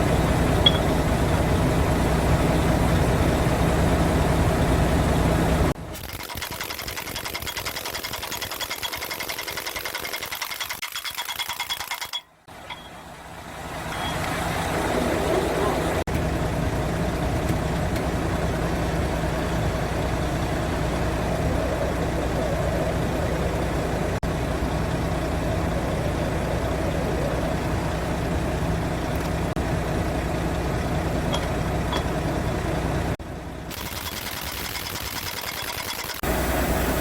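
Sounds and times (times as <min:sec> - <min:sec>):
truck engine idling: 0:00.0 - 0:05.9, 0:12.4 - 0:33.8.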